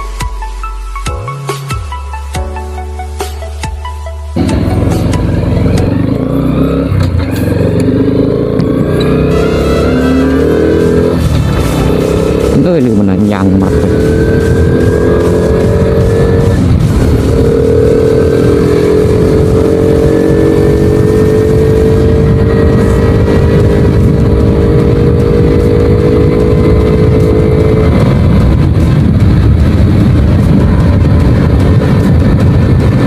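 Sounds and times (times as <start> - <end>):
motorcycle engine running: 4.4 - 33.0
wind noise on microphone: 4.4 - 33.0.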